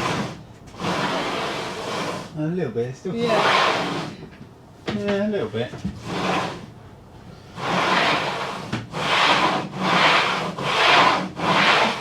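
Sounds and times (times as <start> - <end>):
sliding hatch scraping on rails: 0.0 - 2.4, 3.2 - 4.2, 5.9 - 6.7, 7.5 - 12.0.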